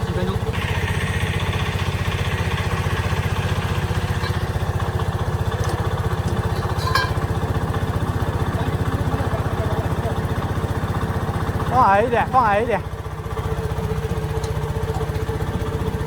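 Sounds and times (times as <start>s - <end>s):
engine running steadily: 0.0s - 16.0s
short metallic clink: 5.6s - 7.4s.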